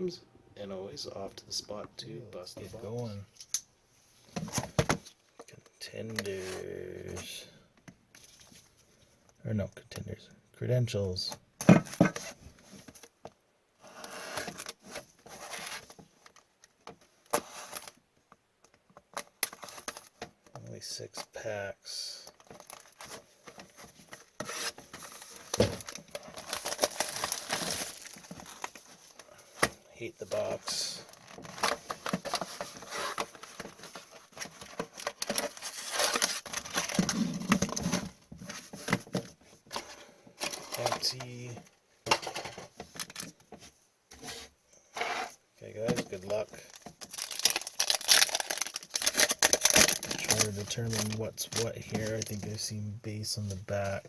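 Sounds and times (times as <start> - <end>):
wrappers rustling and crinkling: 22.2 - 29.5, 30.3 - 39.0, 45.8 - 52.6
cardboard box tearing: 47.1 - 50.4.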